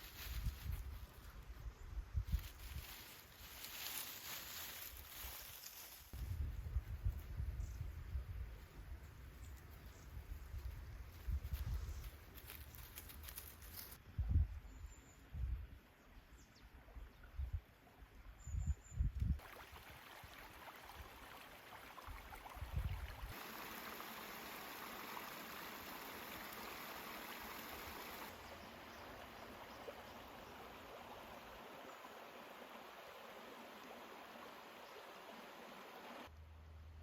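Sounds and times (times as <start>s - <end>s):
stream rushing: 19.4s - 36.3s.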